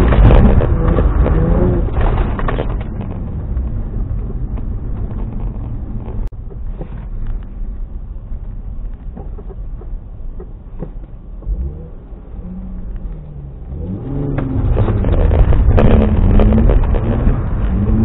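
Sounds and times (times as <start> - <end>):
car engine revving: 0.0 - 6.3, 11.4 - 18.0.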